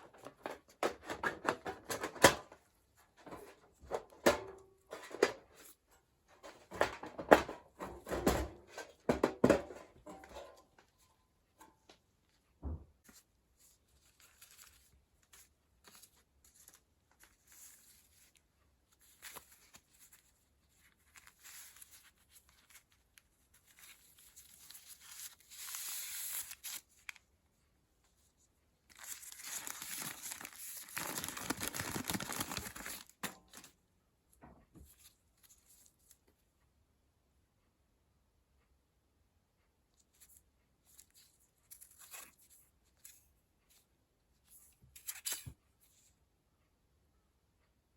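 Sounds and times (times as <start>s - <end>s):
material crinkling and tearing: 13.9s - 27.2s, 28.9s - 33.7s.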